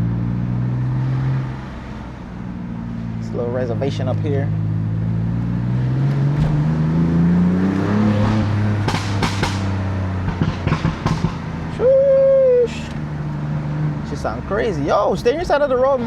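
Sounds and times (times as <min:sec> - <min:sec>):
car engine accelerating: 0:00.0 - 0:16.0
exhaust pops and crackles: 0:08.8 - 0:11.6.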